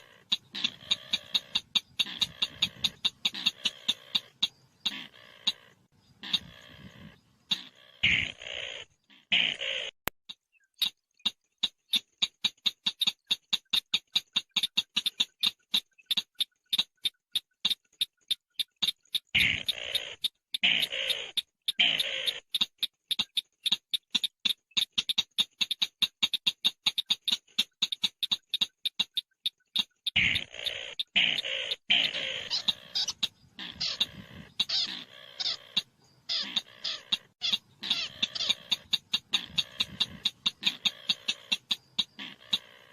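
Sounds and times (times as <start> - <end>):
bird sharp clicks: 0.0 - 5.6, 9.6 - 42.8
starling chattering calls: 0.0 - 9.9, 18.5 - 29.2, 29.8 - 42.9.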